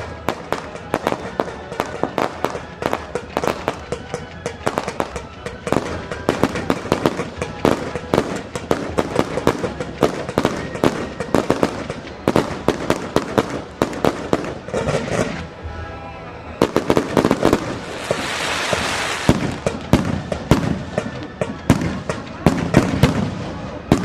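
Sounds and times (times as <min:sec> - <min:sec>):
fireworks bangs and crackles: 0:00.0 - 0:15.8, 0:16.4 - 0:24.0
rushing hiss: 0:17.6 - 0:19.6.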